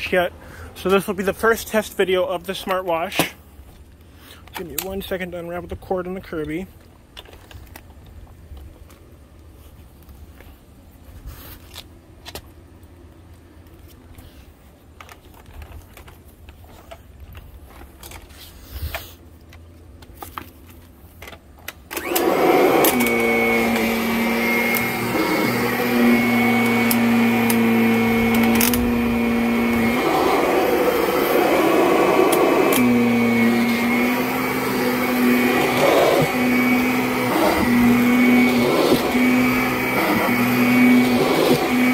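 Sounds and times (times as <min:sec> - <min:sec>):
cord clicking and rustling: 0:14.9 - 0:18.3
vacuum cleaner running: 0:21.9 - 0:41.9.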